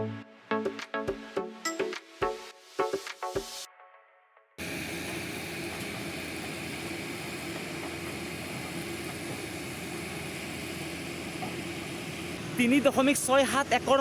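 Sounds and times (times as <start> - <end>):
construction machinery drone: 4.6 - 14.0.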